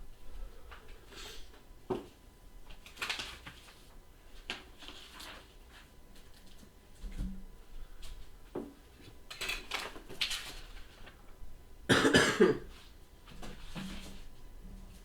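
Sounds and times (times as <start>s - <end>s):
person coughing: 11.9s - 12.7s.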